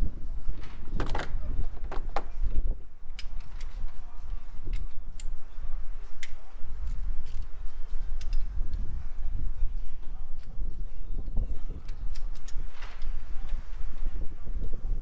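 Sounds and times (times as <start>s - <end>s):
metal tool clicks and clinks: 3.1s - 3.9s, 4.6s - 5.4s, 6.1s - 8.8s, 10.4s - 13.2s.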